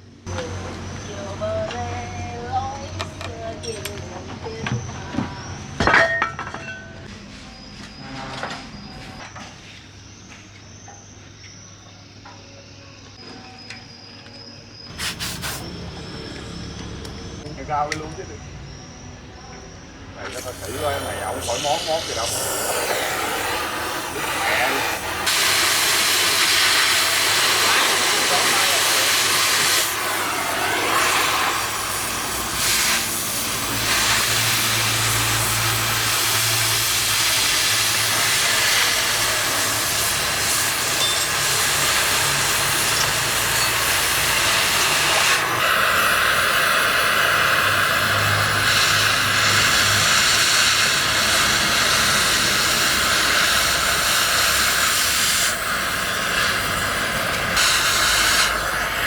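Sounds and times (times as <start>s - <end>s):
cutting torch flame hissing: 14.8s - 17.4s, 20.2s - 59.0s.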